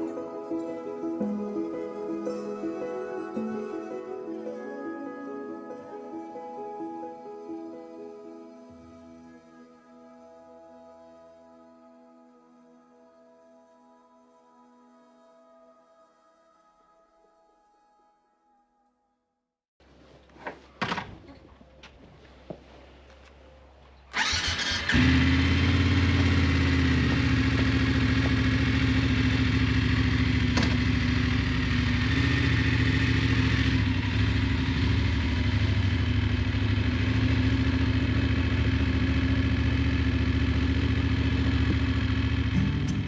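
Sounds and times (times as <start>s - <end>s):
motorcycle electric starter: 24.2s - 34.5s
motorcycle engine idling: 24.2s - 43.0s.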